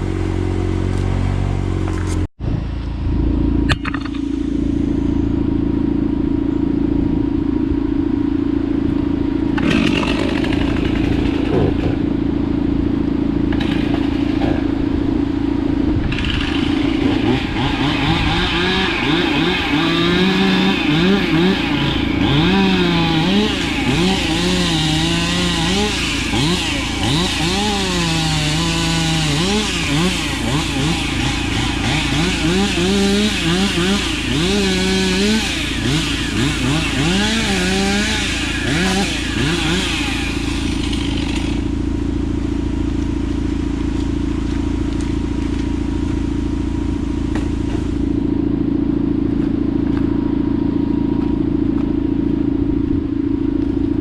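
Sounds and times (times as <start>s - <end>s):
chainsaw cutting through tree: 9.5s - 12.2s, 13.4s - 14.9s, 16.0s - 45.6s.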